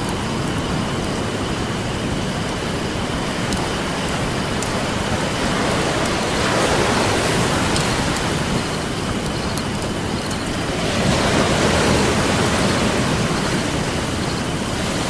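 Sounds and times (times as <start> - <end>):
ocean surf washing onto beach: 0.0 - 15.0.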